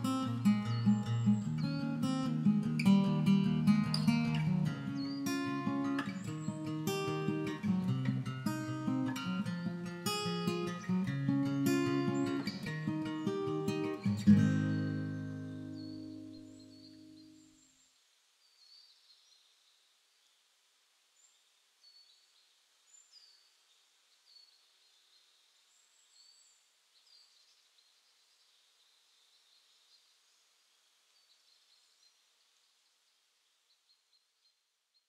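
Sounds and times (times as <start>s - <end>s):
birds chirping: 0.0s - 17.8s
faint steady hiss: 0.0s - 35.0s.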